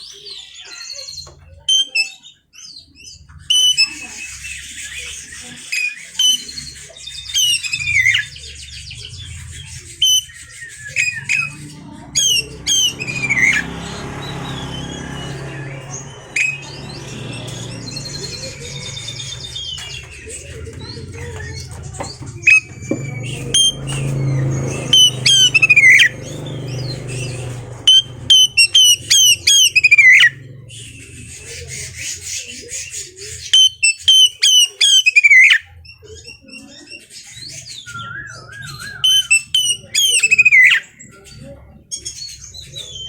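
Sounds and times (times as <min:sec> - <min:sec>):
other bird chirps: 0:00.0 - 0:35.7, 0:37.2 - 0:41.1
bird singing whistled notes: 0:03.4 - 0:21.6, 0:22.3 - 0:30.6, 0:37.6 - 0:41.0.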